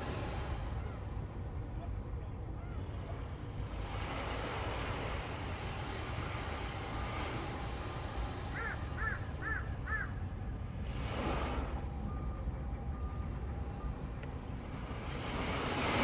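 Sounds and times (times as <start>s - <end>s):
waves washing on a shore: 3.2s - 10.0s, 10.6s - 12.0s, 14.4s - 16.0s
crow cawing: 8.5s - 10.2s.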